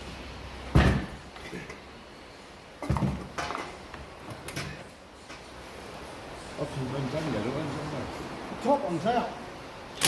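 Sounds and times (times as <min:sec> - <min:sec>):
tools and parts clunking: 0:02.8 - 0:05.5.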